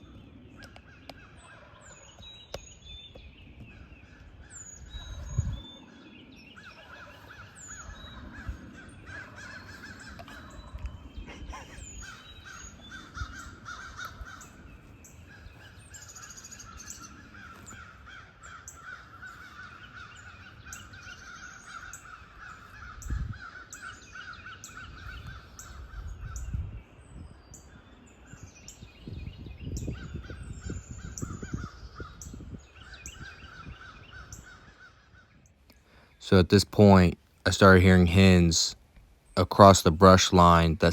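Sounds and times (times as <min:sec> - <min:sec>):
wind buffeting microphone: 0:00.0 - 0:35.4
birds cawing: 0:03.6 - 0:26.5, 0:29.9 - 0:36.2.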